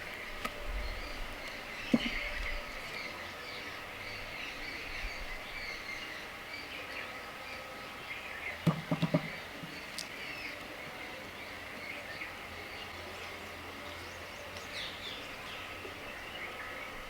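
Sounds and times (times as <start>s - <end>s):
small birds chirping: 0.0s - 17.0s
quick sharp knocks: 8.6s - 9.4s.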